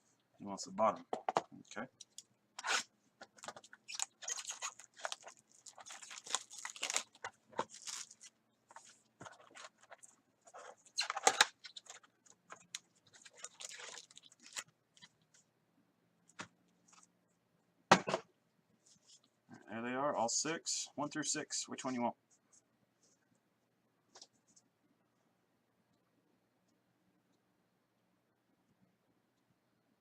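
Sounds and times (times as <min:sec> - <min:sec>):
plastic wrapping crinkling: 0:02.0 - 0:15.2.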